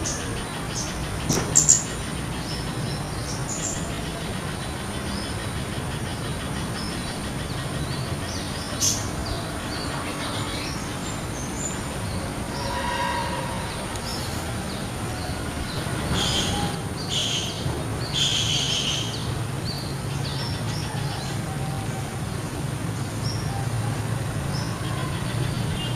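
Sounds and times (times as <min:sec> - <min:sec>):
birds chirping: 0:00.0 - 0:25.9.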